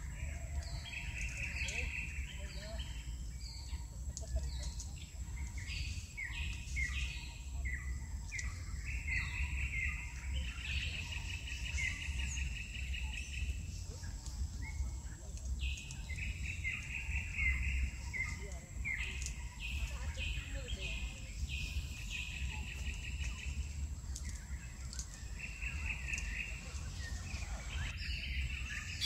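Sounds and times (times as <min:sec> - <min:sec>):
songbirds chirping and trilling: 0:00.0 - 0:29.0
steady low rumble: 0:00.0 - 0:29.0.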